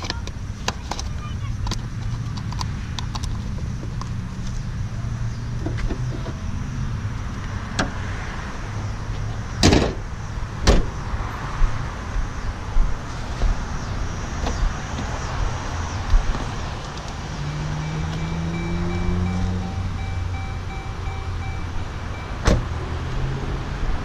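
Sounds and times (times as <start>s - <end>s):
car panels slamming shut: 9.6s - 10.0s, 10.6s - 10.9s, 22.4s - 22.7s.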